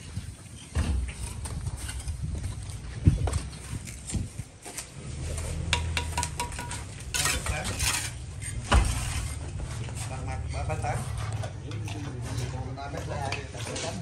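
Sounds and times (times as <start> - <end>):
metal clinks and scraping: 5.2 - 14.0
ringing metal clank: 5.8 - 7.9
heavy thump: 8.6 - 9.3.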